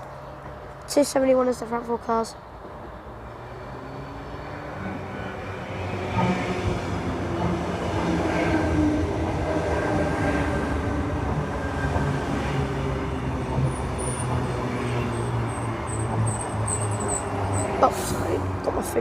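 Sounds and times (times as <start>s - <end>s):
electric train rumbling: 0.0s - 19.0s
high-pitched wheel squeal: 14.9s - 17.8s.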